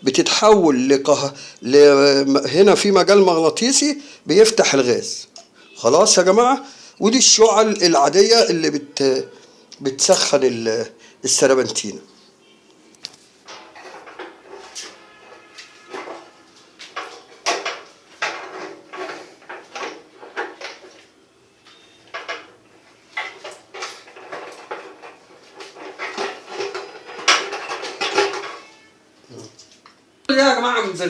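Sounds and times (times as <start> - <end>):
metal clinks and knocks: 13.4 - 21.1, 21.7 - 28.9.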